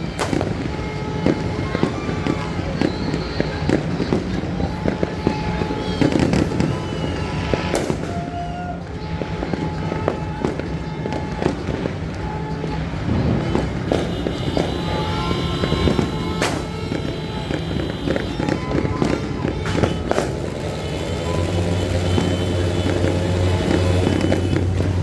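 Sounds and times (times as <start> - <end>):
firecrackers cracking and popping: 0.0 - 25.0.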